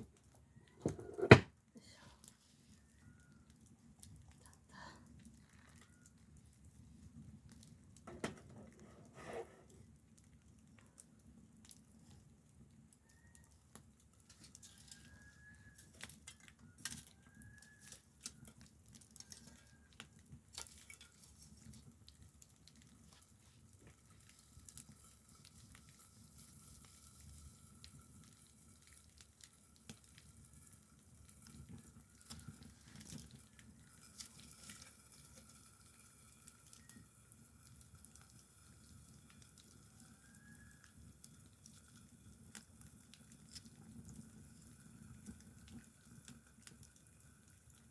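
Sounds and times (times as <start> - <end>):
campfire crackling: 0.0 - 47.9.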